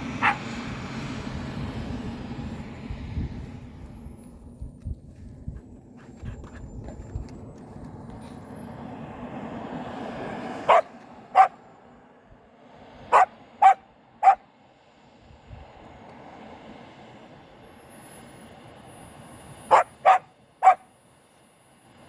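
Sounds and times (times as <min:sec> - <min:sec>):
dog barking: 0:00.2 - 0:00.5, 0:10.7 - 0:11.6, 0:13.1 - 0:14.4, 0:19.7 - 0:20.9.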